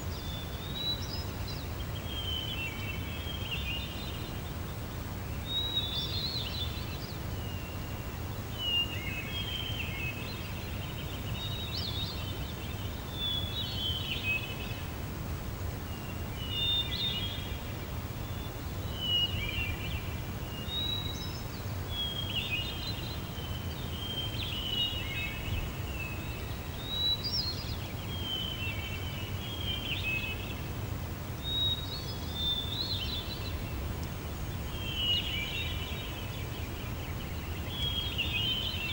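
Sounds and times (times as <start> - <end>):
songbirds chirping: 15.8 - 38.9.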